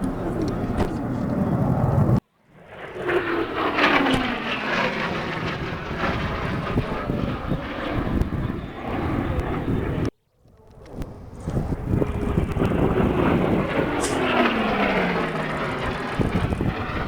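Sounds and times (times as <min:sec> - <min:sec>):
aircraft flying overhead: 0:00.0 - 0:17.0.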